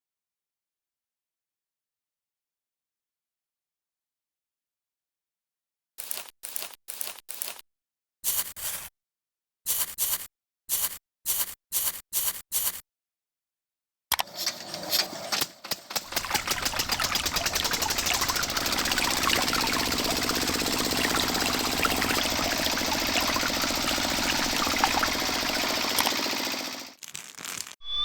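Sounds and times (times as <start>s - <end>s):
small motor rattling: 14.2s - 27.0s.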